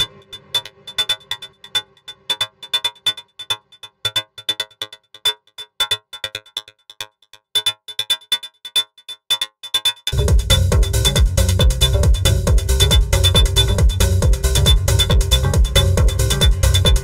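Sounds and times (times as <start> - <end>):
high electronic ping: 10.1 - 17.0.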